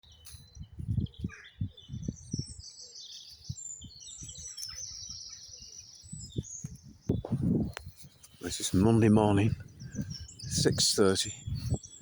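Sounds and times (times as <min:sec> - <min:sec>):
birds trilling and chirping: 0:00.0 - 0:12.0
microphone thumps and rumbles: 0:06.2 - 0:10.8.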